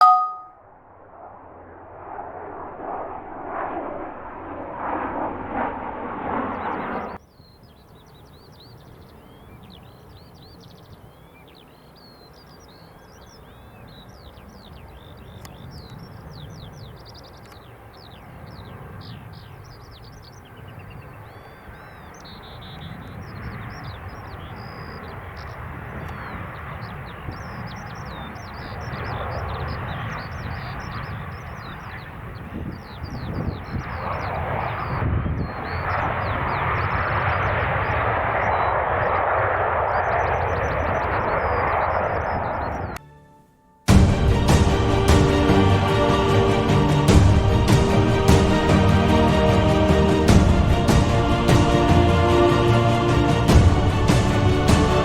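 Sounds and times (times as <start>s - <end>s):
birds chirping: 0.0s - 0.5s, 6.5s - 39.2s, 39.8s - 43.0s
jet airliner rumble: 0.9s - 7.2s, 14.4s - 43.0s, 43.9s - 55.0s.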